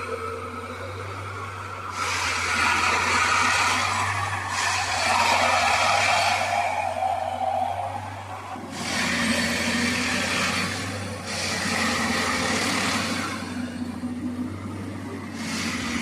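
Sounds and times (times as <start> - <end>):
low engine hum: 0.0 - 16.0
loud hissing grinding noise: 1.9 - 7.9, 8.6 - 13.9, 15.2 - 16.0.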